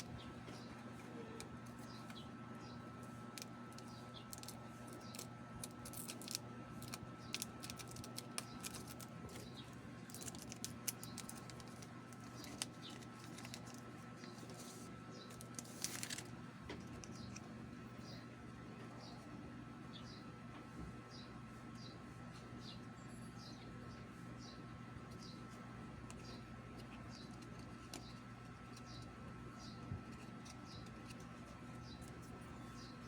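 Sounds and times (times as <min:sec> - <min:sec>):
steady low hum: 0:00.0 - 0:33.0
playing cards and packaging crinkling: 0:03.0 - 0:17.4.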